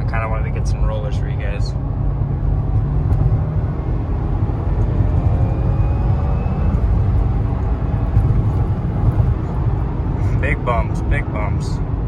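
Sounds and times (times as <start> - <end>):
car engine drone inside cabin: 0.0 - 12.0
road and tyre rumble: 0.0 - 12.0.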